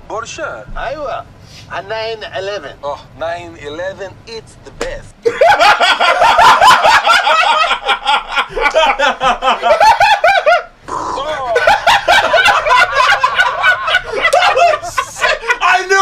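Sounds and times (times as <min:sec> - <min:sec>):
people laughing hard: 0:05.2 - 0:16.0.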